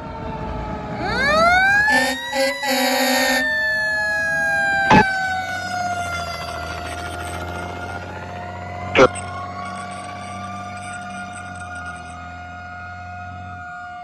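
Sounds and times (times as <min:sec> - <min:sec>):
fire engine siren wailing: 0:00.0 - 0:14.0
short horn blasts: 0:01.0 - 0:03.6.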